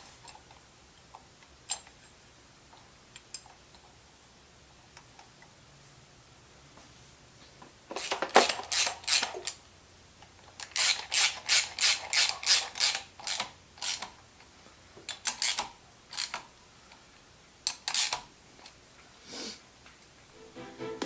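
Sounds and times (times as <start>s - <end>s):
ratchet wrench clicking: 10.6s - 14.1s, 17.7s - 18.2s.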